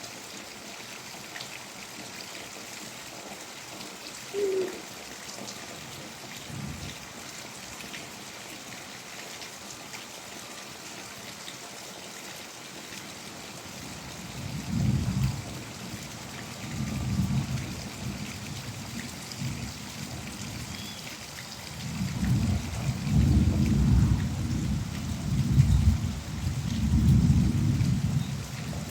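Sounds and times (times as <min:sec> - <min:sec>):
steady rain falling: 0:00.0 - 0:28.9
raindrops ticking: 0:20.7 - 0:26.0
thunder rumbling: 0:21.8 - 0:28.9.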